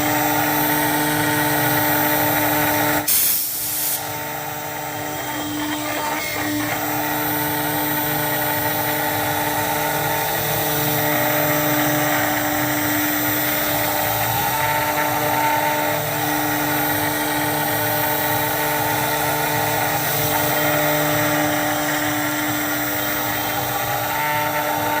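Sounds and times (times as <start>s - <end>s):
router spindle whine: 0.0s - 25.0s
hiss of cutting plastic: 3.0s - 4.1s.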